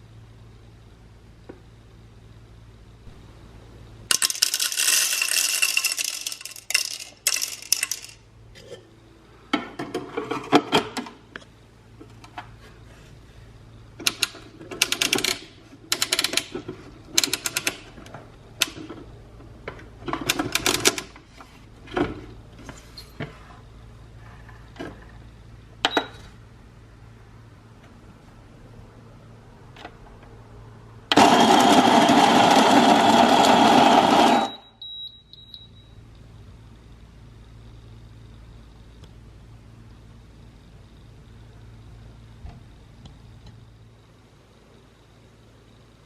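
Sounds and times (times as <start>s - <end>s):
coffee grinder grinding: 4.1s - 8.8s, 31.1s - 34.6s.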